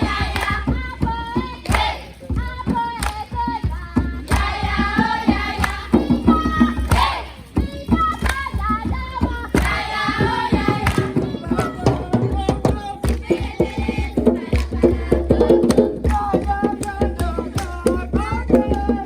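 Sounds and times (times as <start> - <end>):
hand clapping: 0.0 - 0.8, 1.6 - 2.1, 3.0 - 3.4, 4.3 - 4.8, 5.6 - 8.8, 9.6 - 13.5, 16.0 - 19.0
drumming: 0.0 - 19.0
group singing: 0.0 - 19.0.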